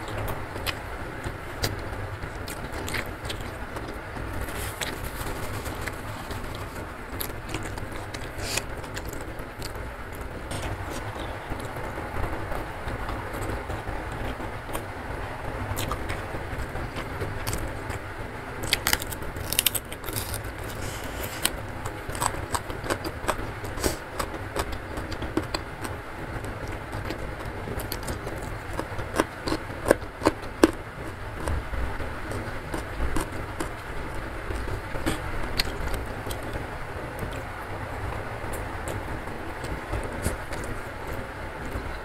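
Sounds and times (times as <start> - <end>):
wet chewing and smacking: 0.0 - 11.7, 15.7 - 36.6, 38.5 - 42.0
heavy rain hiss: 3.5 - 9.5, 20.5 - 21.8, 23.6 - 24.2.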